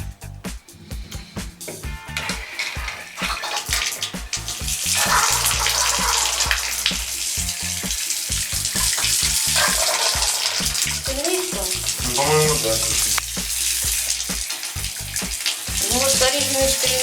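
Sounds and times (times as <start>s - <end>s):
background music: 0.0s - 17.0s
water running from tap: 0.7s - 17.0s.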